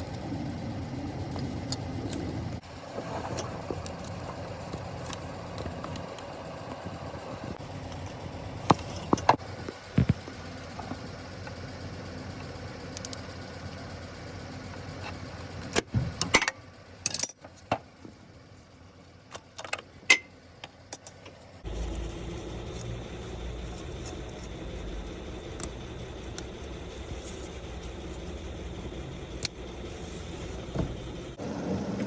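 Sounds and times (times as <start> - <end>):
sharp metallic clicks and clinks: 16.2 - 17.7, 19.3 - 21.4.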